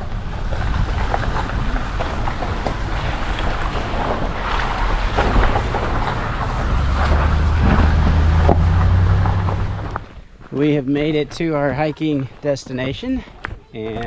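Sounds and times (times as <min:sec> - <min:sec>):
low engine drone: 0:00.0 - 0:10.1
tyre and road noise: 0:00.0 - 0:14.0.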